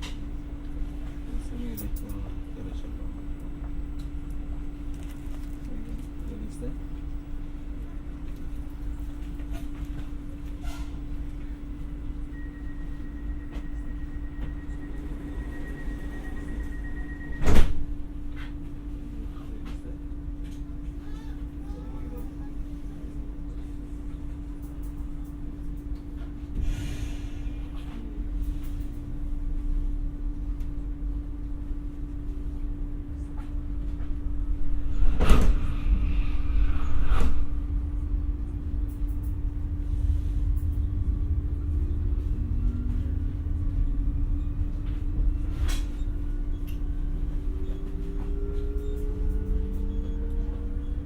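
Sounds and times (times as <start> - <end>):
train rumble and hum: 0.0 - 51.0
faint high whine: 0.3 - 19.2, 34.4 - 51.0.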